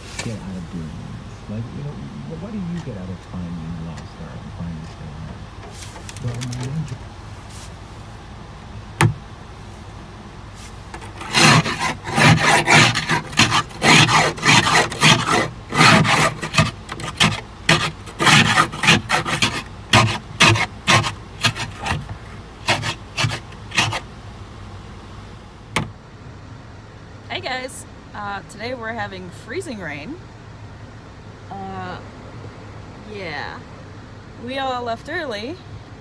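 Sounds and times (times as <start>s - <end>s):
ice scraper scraping windshield: 0.0s - 0.9s, 5.6s - 7.8s, 9.0s - 9.2s, 10.6s - 24.1s.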